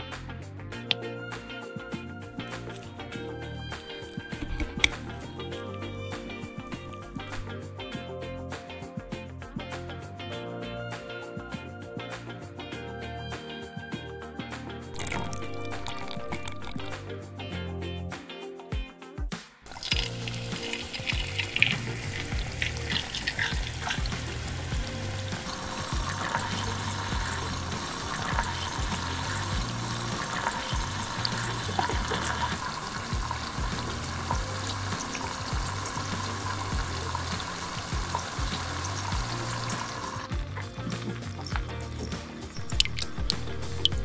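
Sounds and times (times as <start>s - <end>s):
meatballs sizzling in oil: 19.7s - 44.0s.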